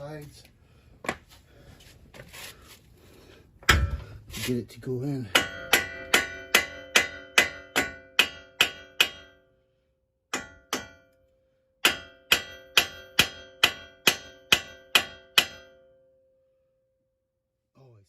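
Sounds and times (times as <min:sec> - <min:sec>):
hammer tapping on metal: 0:05.2 - 0:09.4, 0:10.3 - 0:11.2, 0:11.8 - 0:15.9.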